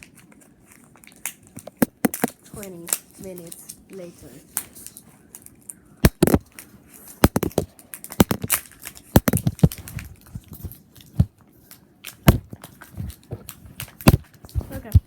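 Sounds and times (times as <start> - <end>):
packaging being torn: 0.0 - 3.8, 4.5 - 15.0
sharp knocks and clicks: 6.0 - 6.6, 7.2 - 11.4, 12.1 - 15.0.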